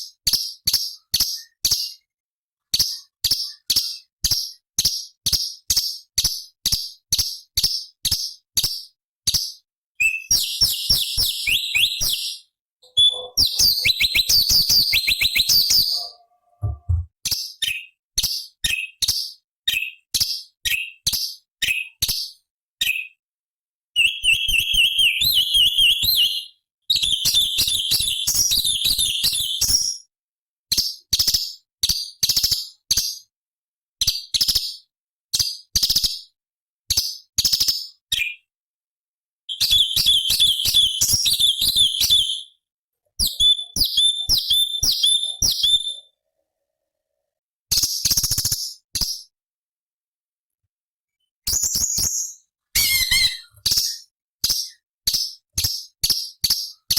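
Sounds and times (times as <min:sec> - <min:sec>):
bird singing sharp high chirps: 0:09.3 - 0:17.9, 0:24.0 - 0:30.0, 0:39.5 - 0:42.5, 0:43.2 - 0:46.1, 0:51.5 - 0:56.7
bird trilling: 0:10.4 - 0:17.1, 0:43.2 - 0:46.1, 0:52.8 - 0:54.0
low thump: 0:16.6 - 0:17.1.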